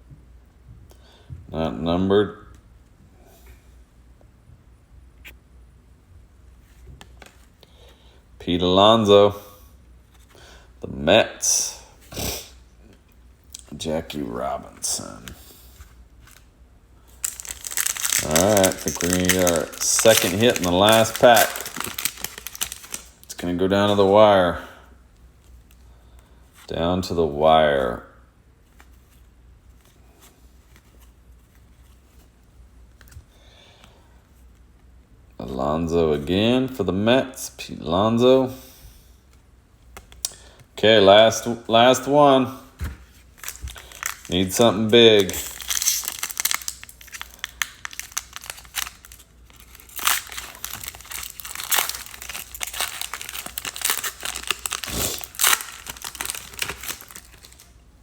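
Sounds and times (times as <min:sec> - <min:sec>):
low steady hum: 0:00.0 - 0:58.0
foil wrapper crinkling and tearing: 0:17.1 - 0:24.1, 0:42.8 - 0:57.8
trading cards clicking and rustling: 0:17.2 - 0:24.1, 0:42.8 - 0:57.7.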